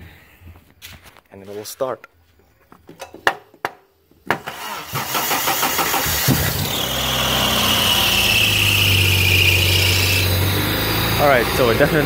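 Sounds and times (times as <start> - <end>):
car engine cranking and idling: 4.2 - 12.0
drive belt squealing: 4.6 - 11.9.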